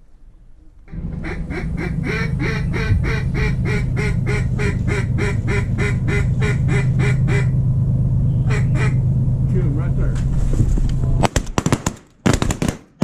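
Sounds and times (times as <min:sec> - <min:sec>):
low hum: 0:00.0 - 0:11.6
duck quacking: 0:01.2 - 0:07.5, 0:08.5 - 0:09.0.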